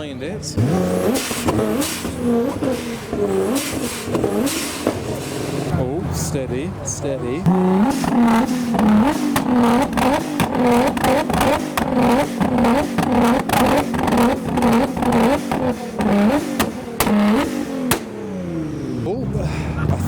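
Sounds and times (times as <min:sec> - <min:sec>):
car engine revving hard: 0:00.5 - 0:06.0, 0:07.0 - 0:20.0
exhaust pops and cracks: 0:00.9 - 0:05.7, 0:07.5 - 0:18.2.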